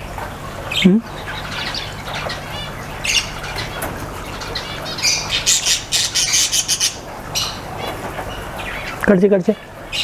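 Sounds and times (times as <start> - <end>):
cockatiel chirping and squawking: 1.2 - 9.0.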